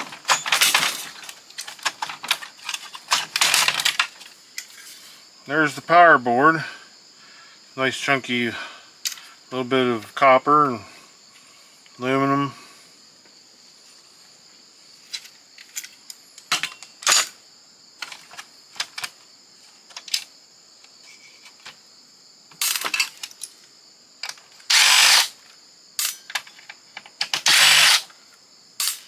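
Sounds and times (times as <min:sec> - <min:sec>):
parts and screws clicking: 0:00.0 - 0:04.9, 0:09.0 - 0:09.3, 0:15.1 - 0:17.4, 0:18.0 - 0:19.2, 0:22.5 - 0:25.4, 0:26.0 - 0:28.2, 0:28.8 - 0:29.0
cordless drill-driver running: 0:24.7 - 0:25.3, 0:27.5 - 0:28.1.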